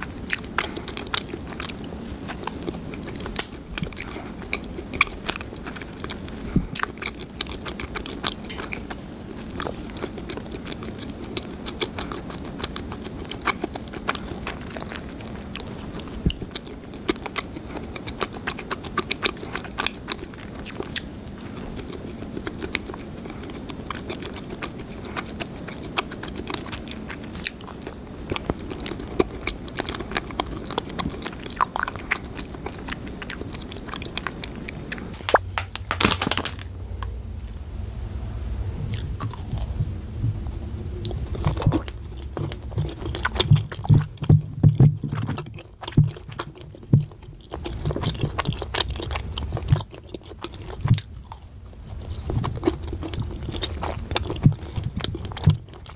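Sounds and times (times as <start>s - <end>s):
biting and chewing bread: 0.0s - 37.2s, 38.9s - 55.9s
crisp crust crackling: 0.0s - 37.2s.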